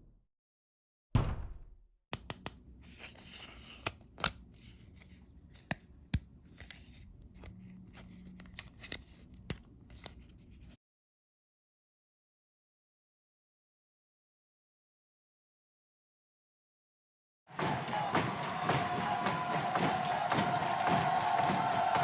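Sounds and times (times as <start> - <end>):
low thump: 1.2 - 1.8.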